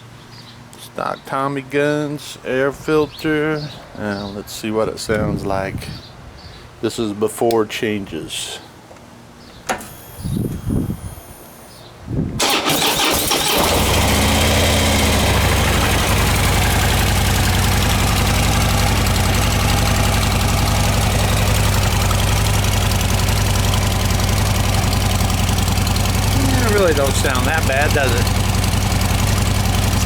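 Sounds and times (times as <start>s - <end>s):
motorcycle engine starting and idling: 9.8s - 11.8s, 12.4s - 30.0s.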